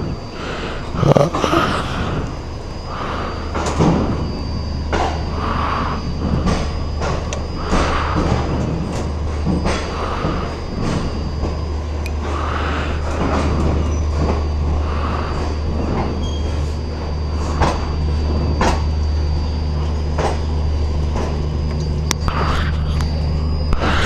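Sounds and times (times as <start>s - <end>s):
train rumbling past: 0.0s - 24.0s
train wheels clacking: 6.1s - 14.8s.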